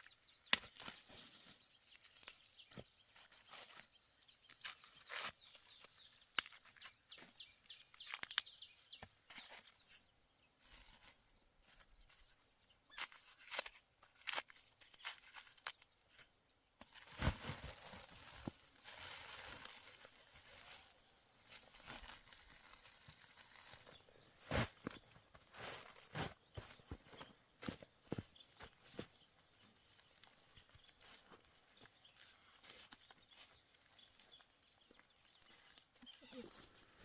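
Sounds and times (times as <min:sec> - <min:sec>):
dry plant material crackling: 0:04.5 - 0:08.6, 0:16.8 - 0:25.0, 0:29.9 - 0:37.0
dry leaves rustling: 0:16.9 - 0:23.9.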